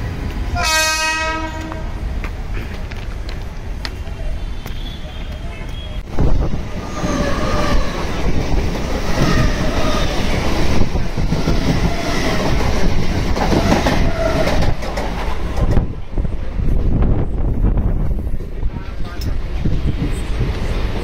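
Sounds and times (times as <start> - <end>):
electric train passing: 6.1 - 21.0
wheels clattering on rails: 6.7 - 16.0.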